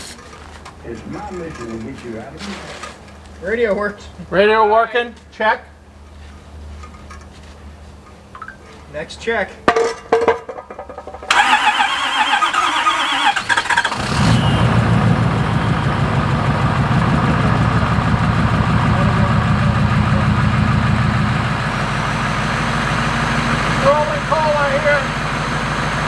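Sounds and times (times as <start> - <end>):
diesel engine idling: 11.1 - 26.0
diesel engine cranking on starter: 11.2 - 26.0.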